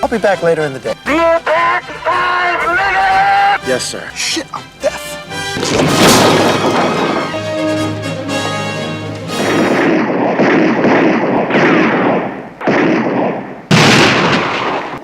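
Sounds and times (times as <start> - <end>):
music playing: 0.0 - 9.8
loud gunshots with echo: 5.5 - 7.6, 9.6 - 15.0.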